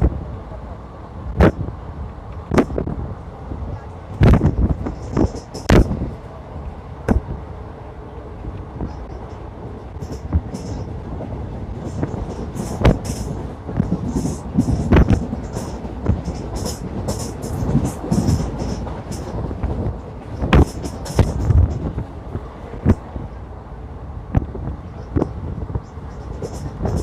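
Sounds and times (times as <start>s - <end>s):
train rumbling on track: 0.0s - 27.0s
train wheels clacking: 4.2s - 6.2s, 8.6s - 23.4s, 24.4s - 27.0s.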